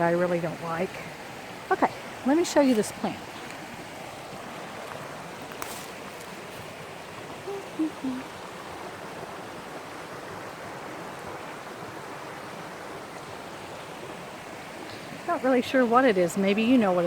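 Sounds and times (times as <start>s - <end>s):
short falling vocal hum: 7.5s - 8.2s.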